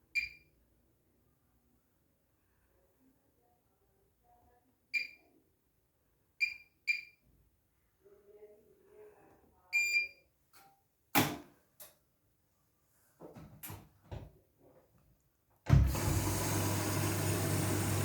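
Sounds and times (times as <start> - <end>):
washing machine beeps: 0.1 - 0.5, 5.0 - 5.2, 6.4 - 7.2, 9.7 - 10.2, 15.8 - 18.0.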